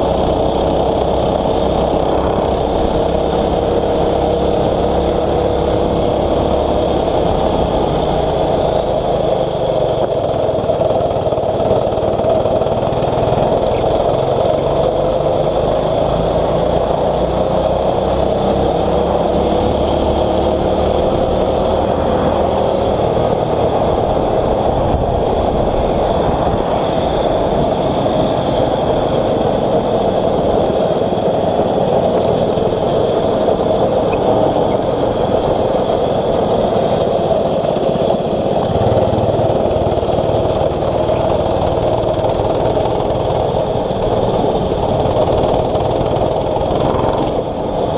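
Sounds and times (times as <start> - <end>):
small engine running: 0.0 - 47.9.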